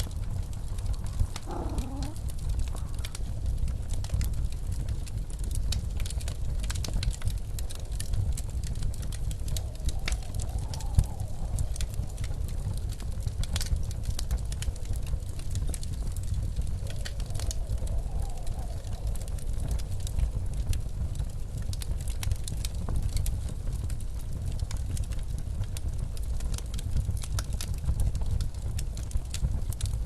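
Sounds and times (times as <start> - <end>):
blizzard wind howling: 0.0 - 24.6
wood fire crackling and popping: 0.0 - 30.0.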